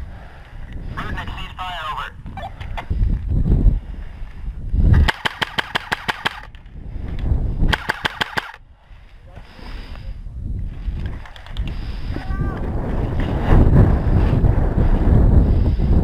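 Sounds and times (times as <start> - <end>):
airsoft gun firing bursts: 5.0 - 6.5, 7.7 - 8.6.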